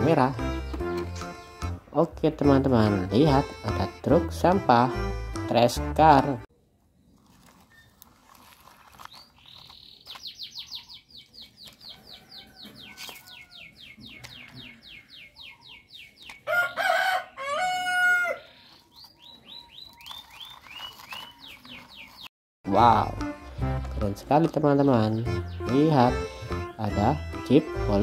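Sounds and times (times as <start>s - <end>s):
rapid high bird chirps: 9.0s - 16.6s, 18.4s - 22.3s.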